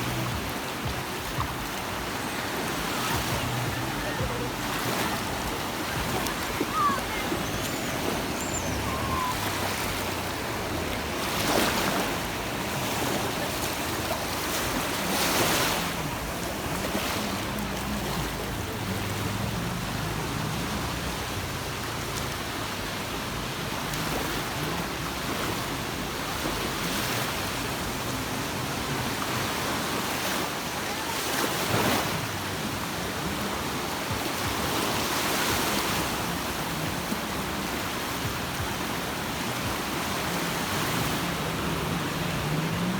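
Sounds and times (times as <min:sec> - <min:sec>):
wave breaking: 0:00.0 - 0:21.1, 0:34.1 - 0:42.9.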